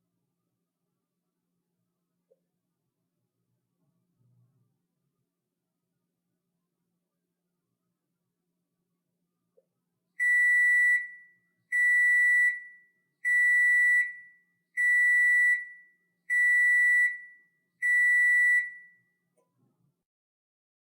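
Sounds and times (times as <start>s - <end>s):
washing machine beeps: 10.2s - 19.1s.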